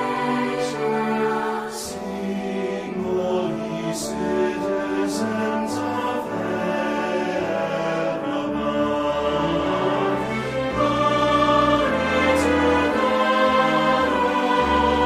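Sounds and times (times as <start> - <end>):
church choir singing: 0.0 - 15.0
instrumental accompaniment: 0.0 - 15.0.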